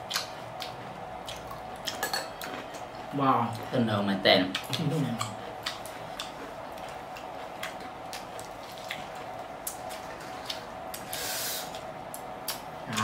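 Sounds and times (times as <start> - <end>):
chewing crunchy food: 0.0 - 3.7, 4.5 - 11.1.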